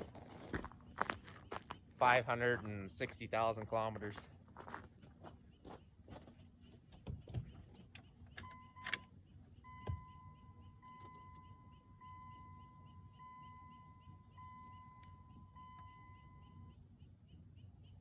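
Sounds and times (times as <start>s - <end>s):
electronic warning chime: 8.4s - 16.9s.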